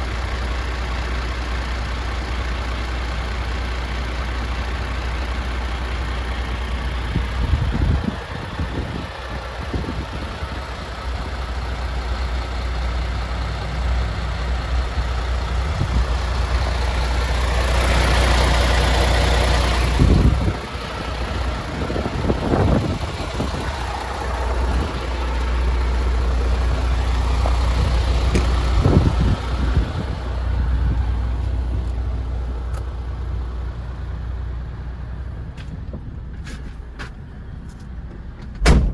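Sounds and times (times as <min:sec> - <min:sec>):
diesel truck engine idling: 0:00.0 - 0:38.9
thuds: 0:28.3 - 0:28.7, 0:38.1 - 0:38.9.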